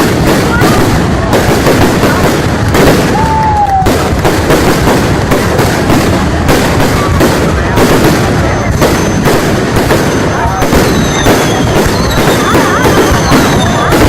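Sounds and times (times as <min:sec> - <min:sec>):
fireworks bursting and crackling: 0:00.0 - 0:14.0.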